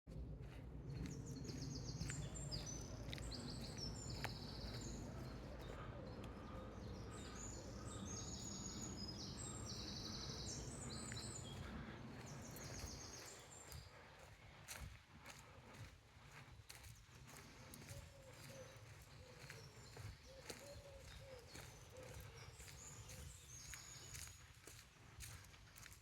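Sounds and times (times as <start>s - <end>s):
steady low rumble: 0.1s - 16.6s
songbirds singing: 0.4s - 26.0s.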